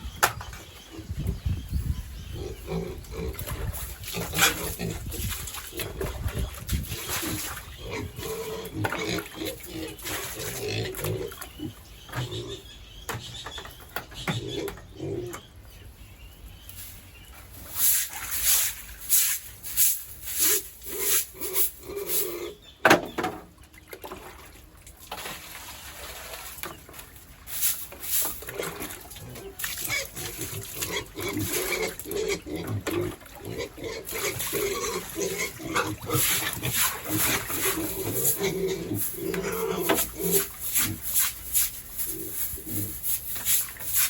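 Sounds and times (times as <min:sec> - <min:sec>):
pigs grunting: 0:02.3 - 0:12.7, 0:14.3 - 0:15.5, 0:20.5 - 0:22.7, 0:28.4 - 0:41.2.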